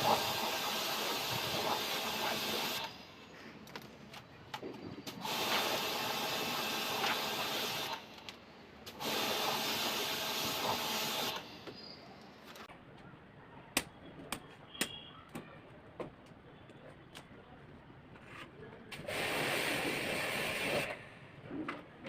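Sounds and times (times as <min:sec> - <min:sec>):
pressure washer spraying water: 0:00.0 - 0:03.0, 0:05.2 - 0:08.0, 0:09.0 - 0:11.6, 0:19.0 - 0:20.9.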